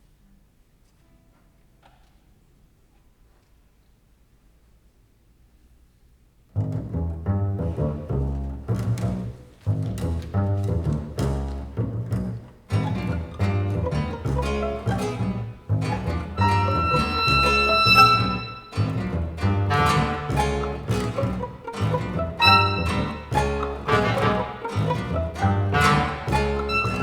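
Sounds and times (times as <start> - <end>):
chamber music ensemble: 6.7 - 27.0.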